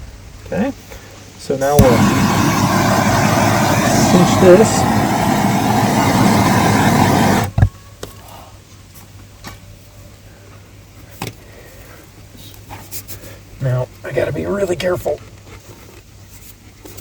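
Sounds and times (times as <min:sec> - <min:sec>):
loud steady motor: 0:01.8 - 0:07.5.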